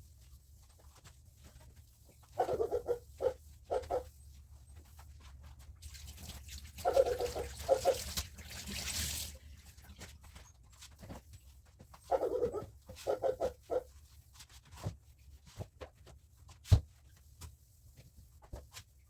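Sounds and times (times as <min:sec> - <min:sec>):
dog whining: 0:12.1 - 0:13.8.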